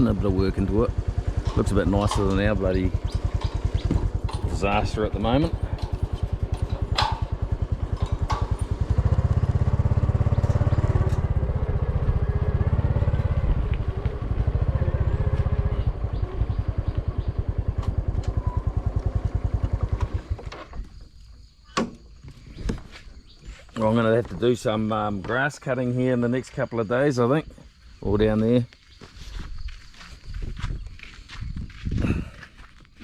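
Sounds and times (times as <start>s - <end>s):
motorcycle engine running: 0.0s - 20.8s.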